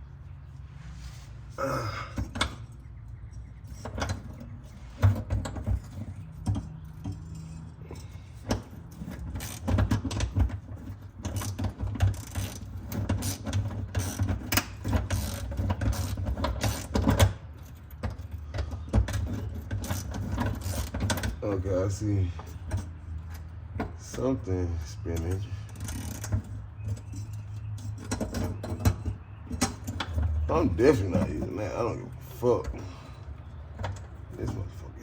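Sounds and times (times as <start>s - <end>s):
hand tools clinking on metal: 13.2s - 33.2s.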